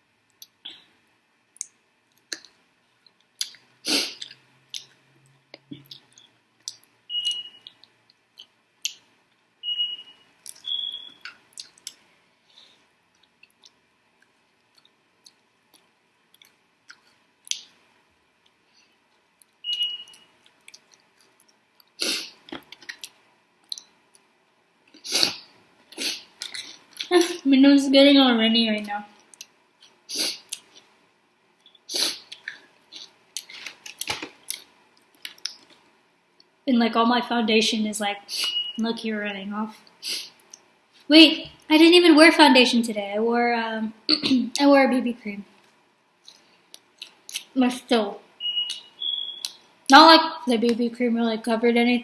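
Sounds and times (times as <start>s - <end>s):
person chewing wetly: 1.6s - 5.0s, 10.4s - 12.0s.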